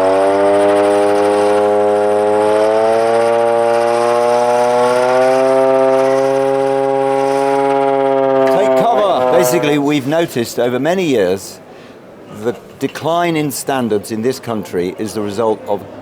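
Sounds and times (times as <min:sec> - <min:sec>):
siren-like tone: 0:00.0 - 0:09.9.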